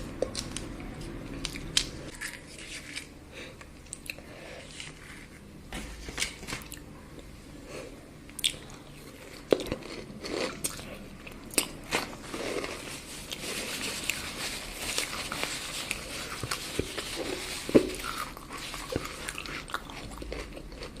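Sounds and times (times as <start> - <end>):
chewing and biting chocolate: 14.9 - 21.0.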